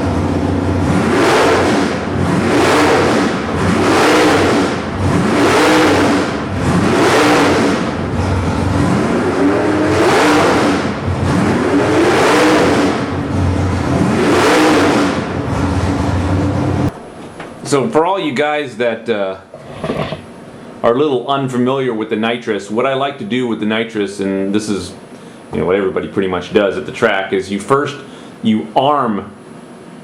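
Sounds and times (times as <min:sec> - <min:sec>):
engine revving from idle: 0:00.0 - 0:17.0.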